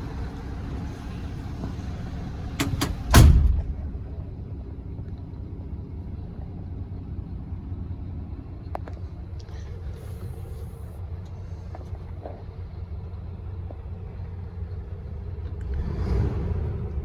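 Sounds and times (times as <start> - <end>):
diesel truck engine idling: 0.0 - 17.0
heavy door slam: 2.6 - 4.0.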